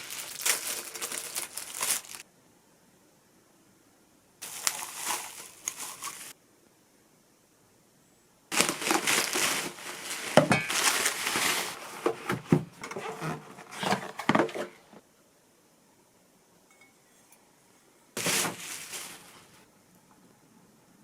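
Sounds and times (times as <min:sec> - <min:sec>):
packaging crinkling and tearing: 0:00.0 - 0:02.2, 0:04.4 - 0:06.4, 0:08.5 - 0:11.9, 0:18.2 - 0:19.5.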